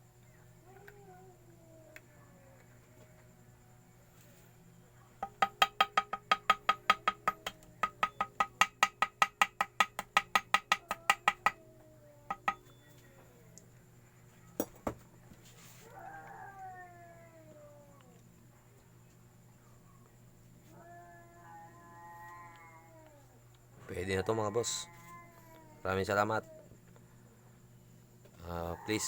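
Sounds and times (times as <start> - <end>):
rapid ringing taps: 5.2 - 11.6, 12.3 - 12.8.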